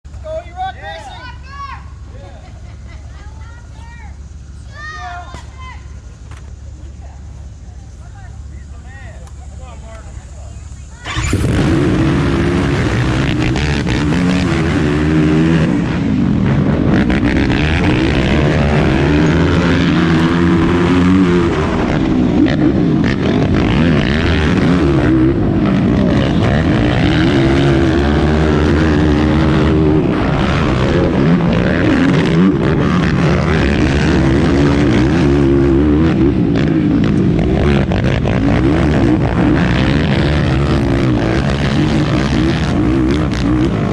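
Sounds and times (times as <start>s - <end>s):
track noise: 0.0s - 43.9s
quad engine revving: 9.7s - 43.9s.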